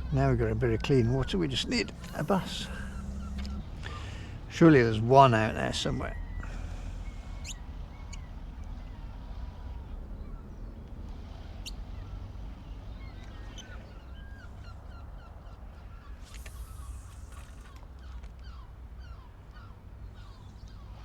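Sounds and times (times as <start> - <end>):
steady low rumble: 0.0 - 17.3
birds chirping: 0.0 - 21.0
high thin bird whistles: 1.9 - 4.2, 6.2 - 8.3, 16.1 - 17.8.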